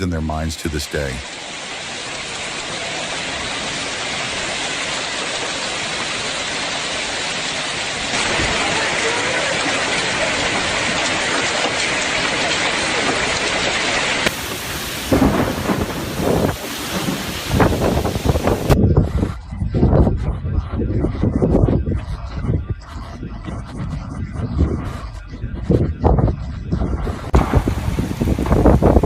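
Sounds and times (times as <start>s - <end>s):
heavy rain hissing: 0.0s - 18.8s, 27.3s - 29.0s
wind buffeting microphone: 14.3s - 29.0s.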